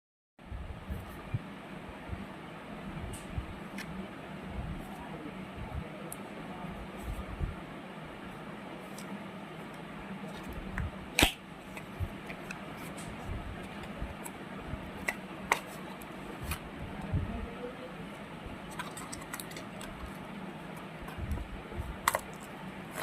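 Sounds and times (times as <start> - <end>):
packaging clicks and taps: 22.0 - 22.4.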